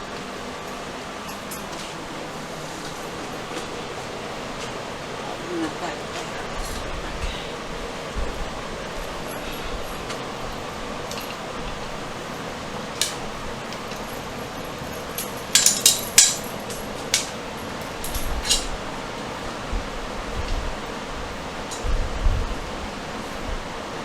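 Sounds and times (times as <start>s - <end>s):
metal hardware clinking and knocking: 13.0s - 18.8s.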